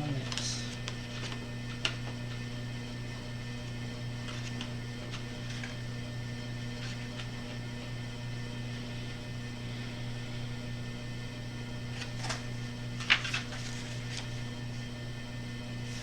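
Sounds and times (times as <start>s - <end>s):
low electrical hum: 0.0s - 16.0s
clicks and rustles of handling: 0.2s - 2.5s, 4.2s - 5.8s, 6.7s - 7.6s, 11.9s - 14.4s.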